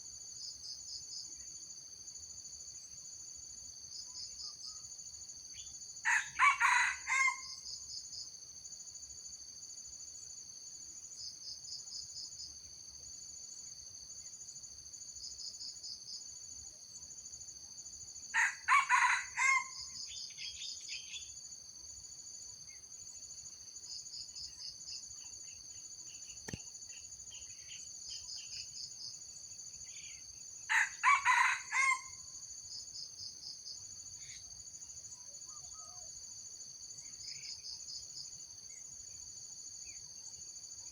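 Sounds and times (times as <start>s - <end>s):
insects buzzing and chirping: 0.0s - 40.9s
rooster crowing: 6.0s - 7.6s, 18.4s - 20.0s, 30.7s - 32.2s.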